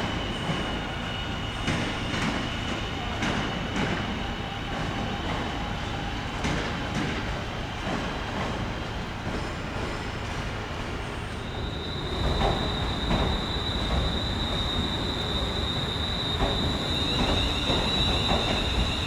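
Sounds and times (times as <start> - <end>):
train moving: 0.0 - 19.0
high-pitched wheel squeal: 11.2 - 19.0.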